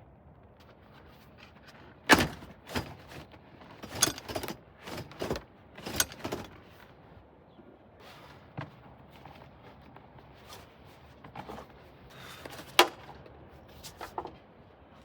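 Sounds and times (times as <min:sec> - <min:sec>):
car seat knocks and clunks: 0:02.1 - 0:03.0.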